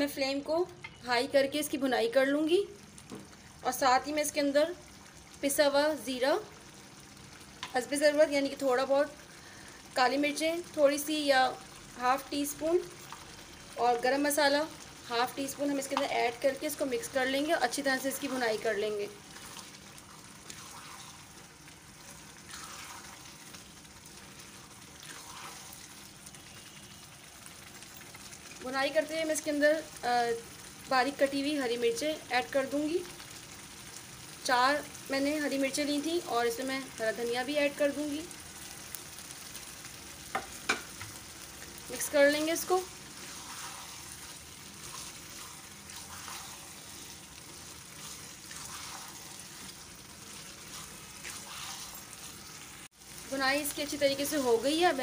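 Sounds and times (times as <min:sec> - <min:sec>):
food sizzling in a pot: 0:00.0 - 0:55.0
spatula stirring in a pot: 0:11.6 - 0:13.5, 0:14.1 - 0:29.0, 0:39.5 - 0:55.0
spatula scraping a pot: 0:43.2 - 0:47.2, 0:48.0 - 0:49.7, 0:50.4 - 0:52.2.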